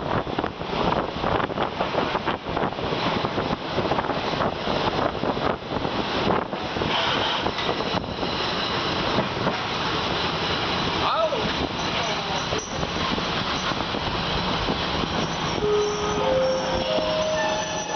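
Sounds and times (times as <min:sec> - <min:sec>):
wind buffeting microphone: 0:00.0 - 0:17.9
train wheels clattering on rails: 0:06.0 - 0:17.9.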